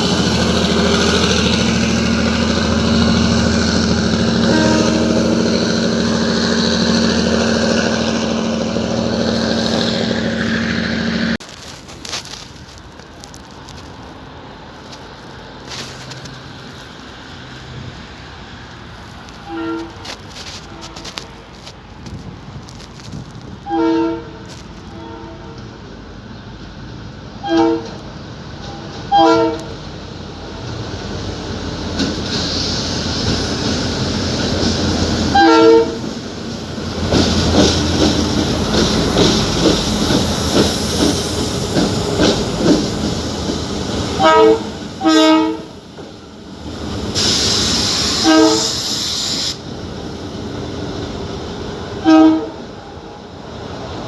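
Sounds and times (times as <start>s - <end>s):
train horn toots: 0.0s - 11.4s, 19.4s - 21.2s, 23.6s - 25.6s, 27.4s - 28.0s, 28.7s - 29.7s, 35.3s - 36.1s, 44.2s - 45.8s, 47.2s - 49.6s, 52.0s - 52.6s
train rumble and wheel clatter: 0.0s - 54.0s.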